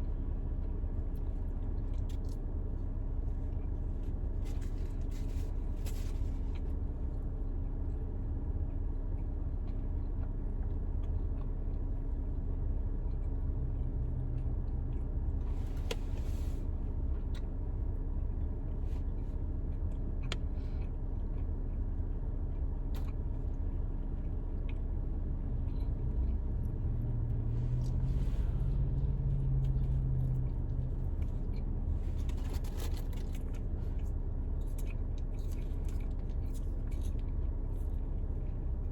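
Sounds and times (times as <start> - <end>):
car cabin rumble and hum: 0.0 - 38.9
food wrappers rustling: 32.1 - 33.6.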